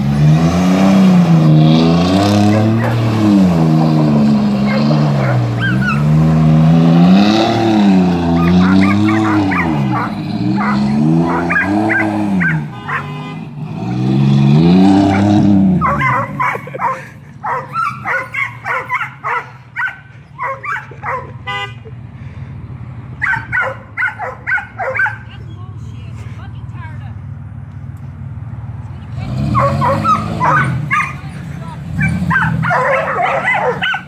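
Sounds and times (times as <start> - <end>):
car engine revving: 0.0 - 25.9, 27.1 - 34.0
dog barking: 2.4 - 3.0, 4.7 - 6.1, 8.4 - 13.2, 15.1 - 21.4, 23.2 - 25.3, 29.5 - 31.3, 32.0 - 34.0.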